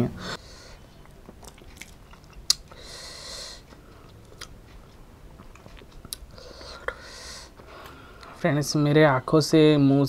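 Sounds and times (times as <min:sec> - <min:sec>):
chewing and mouth sounds: 0:00.9 - 0:02.8, 0:03.7 - 0:07.0.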